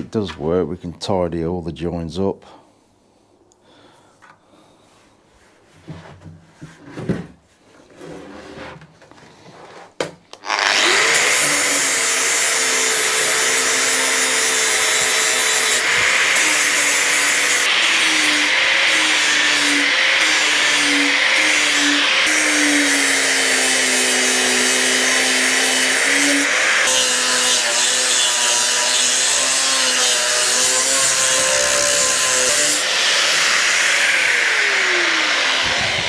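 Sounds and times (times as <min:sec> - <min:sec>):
knocks and handling noises: 0:05.8 - 0:10.4
angle grinder cutting steel: 0:10.4 - 0:36.0.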